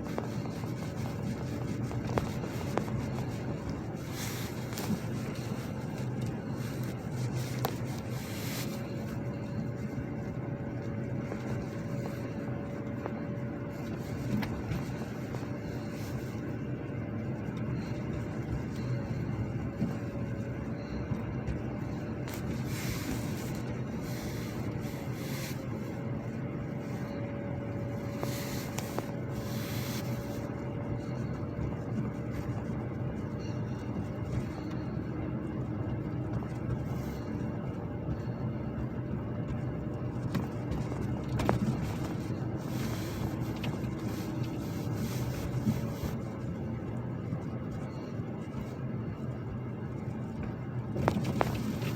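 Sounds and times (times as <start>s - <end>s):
car engine and tyre noise: 0.0s - 51.9s.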